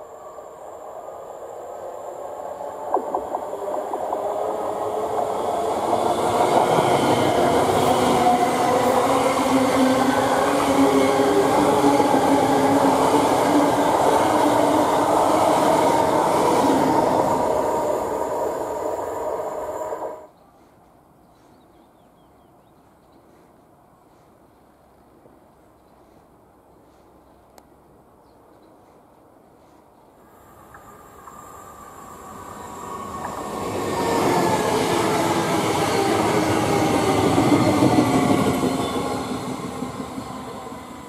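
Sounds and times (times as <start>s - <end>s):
steady train hum: 0.0s - 41.0s
train wheels running on rails: 2.4s - 20.8s, 30.4s - 41.0s.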